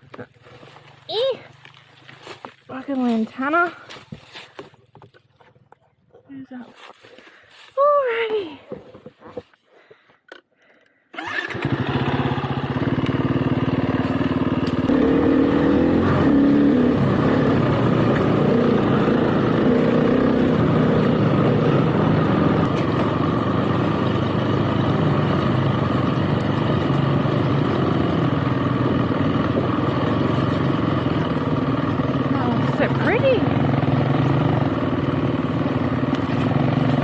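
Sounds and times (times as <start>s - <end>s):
motorcycle engine revving: 11.2s - 37.0s.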